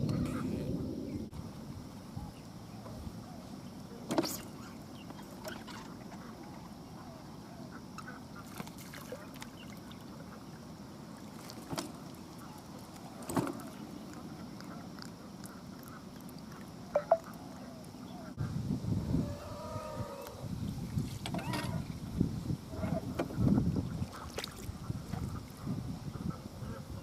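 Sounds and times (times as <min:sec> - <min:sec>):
steady wind: 0:00.0 - 0:27.0
water lapping at the bank: 0:03.7 - 0:18.4, 0:20.6 - 0:27.0.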